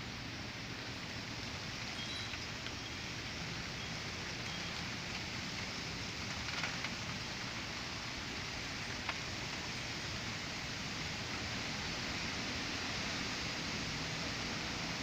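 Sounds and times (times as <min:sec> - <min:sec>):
heavy rain falling: 0:00.0 - 0:15.0
raindrops tapping nearby: 0:00.8 - 0:12.1.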